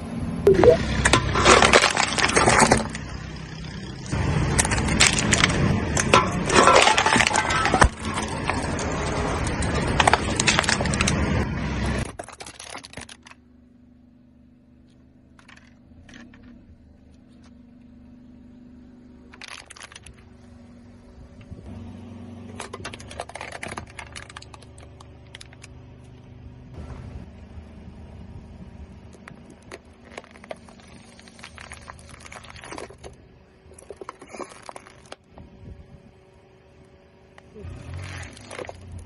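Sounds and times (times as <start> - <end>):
tyre crushing cans and plastic: 0.6 - 3.4, 4.4 - 13.4, 19.3 - 20.3, 22.5 - 25.8, 29.2 - 35.3, 37.6 - 39.0.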